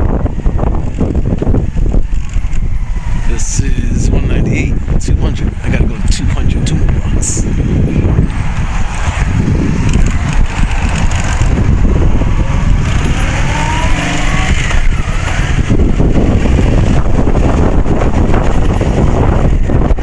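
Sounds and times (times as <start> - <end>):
wind buffeting microphone: 0.0 - 20.0
motorcycle engine: 7.6 - 20.0.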